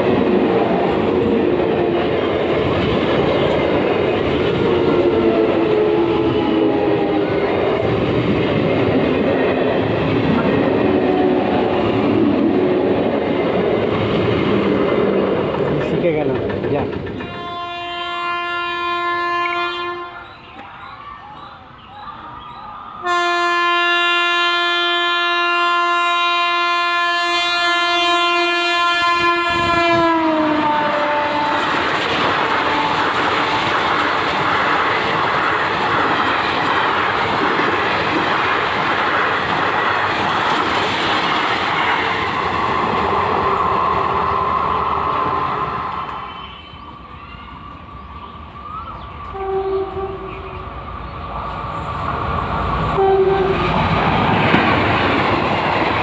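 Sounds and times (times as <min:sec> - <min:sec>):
train coaches rushing past: 0:00.0 - 0:25.5, 0:26.2 - 0:56.0
locomotive horn blast: 0:04.6 - 0:07.3, 0:17.2 - 0:20.2, 0:23.0 - 0:31.8, 0:49.3 - 0:50.5, 0:53.0 - 0:53.7
wheels clacking over rail joints: 0:13.1 - 0:17.8, 0:31.4 - 0:44.1, 0:51.7 - 0:56.0.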